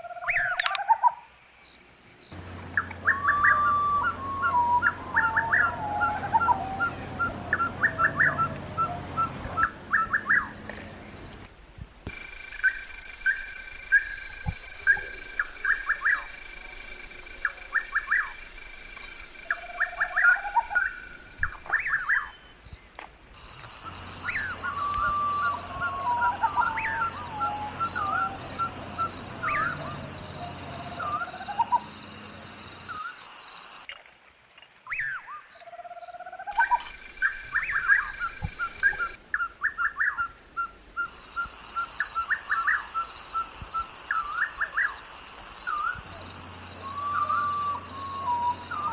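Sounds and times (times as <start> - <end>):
high insect drone: 1.6 - 11.5, 12.1 - 33.9, 36.5 - 39.2, 41.1 - 48.9
birds chirping and whistling: 2.4 - 11.4, 12.1 - 22.8, 24.1 - 32.0, 36.5 - 40.3, 45.7 - 48.9.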